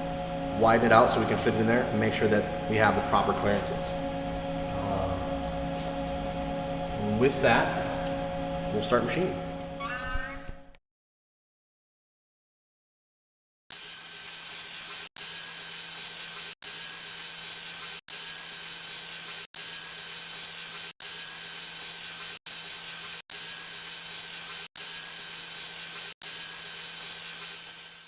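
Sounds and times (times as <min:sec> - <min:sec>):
machine tool cutting metal: 0:17.6 - 0:28.0.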